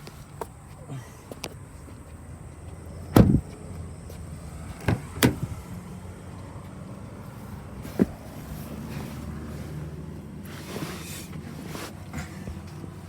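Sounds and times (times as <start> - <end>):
low traffic rumble: 0.0 - 13.0
car door thudding shut: 3.1 - 3.5, 4.8 - 5.5.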